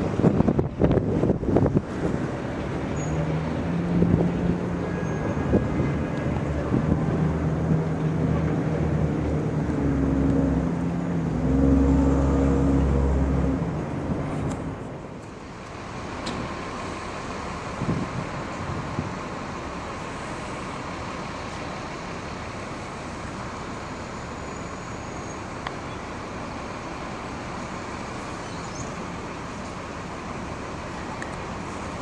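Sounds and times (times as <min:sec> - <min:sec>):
steady background noise: 0:00.0 - 0:32.0
wheels rumbling on rail: 0:00.0 - 0:32.0
electric train motors humming: 0:08.7 - 0:18.5.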